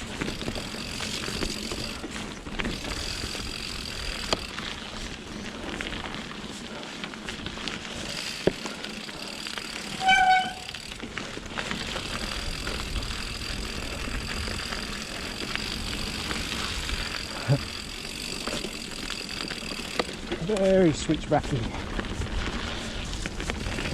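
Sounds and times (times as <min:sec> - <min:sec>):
bike tyres rolling on trail: 0:00.0 - 0:23.9
short high-pitched squeal: 0:09.8 - 0:10.8.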